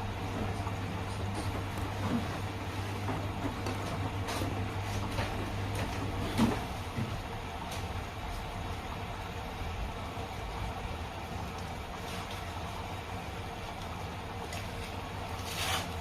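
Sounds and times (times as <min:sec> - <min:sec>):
washing machines humming: 0:00.0 - 0:16.0.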